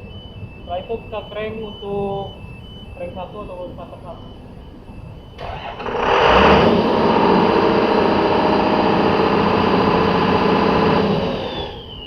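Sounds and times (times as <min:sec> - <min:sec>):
diesel engine cranking: 0:05.4 - 0:12.0
diesel engine running: 0:05.4 - 0:12.0.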